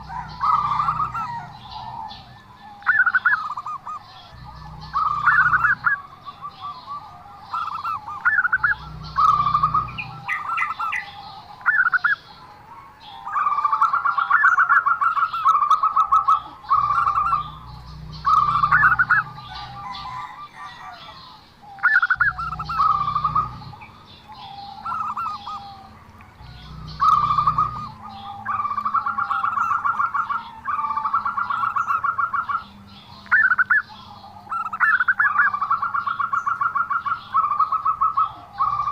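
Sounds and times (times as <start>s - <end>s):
dove trilled cooing: 0.0s - 38.9s
low rumbles: 7.3s - 11.2s, 16.4s - 20.5s, 22.1s - 29.9s.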